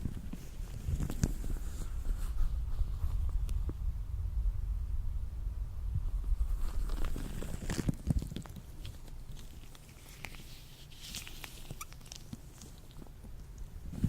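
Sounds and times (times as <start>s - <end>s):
latex gloves crackling: 6.6s - 14.0s.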